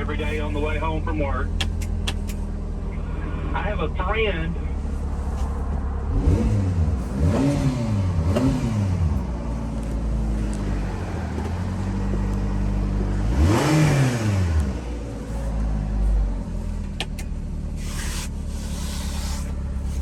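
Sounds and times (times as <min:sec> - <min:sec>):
truck engine idling and revving: 0:00.0 - 0:20.0.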